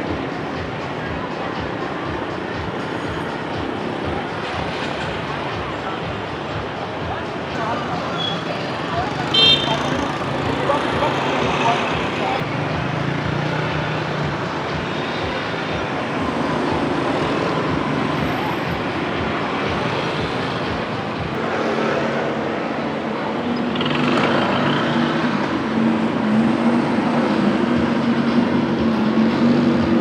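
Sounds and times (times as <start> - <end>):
steady engine hum: 0.0 - 30.0
motorbike and car engines passing: 8.5 - 30.0.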